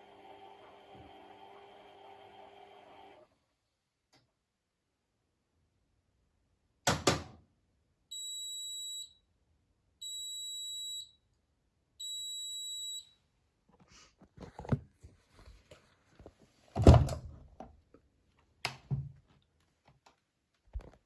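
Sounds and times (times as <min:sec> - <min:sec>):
washing machine high beeps: 0:08.1 - 0:09.2, 0:10.0 - 0:11.2, 0:12.0 - 0:13.2.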